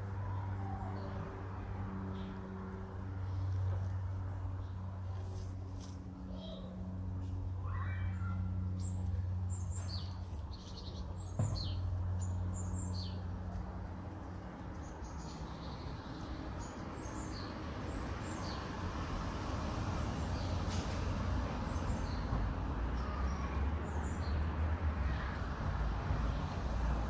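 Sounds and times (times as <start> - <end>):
small birds chirping: 7.6 - 13.6, 14.4 - 18.8.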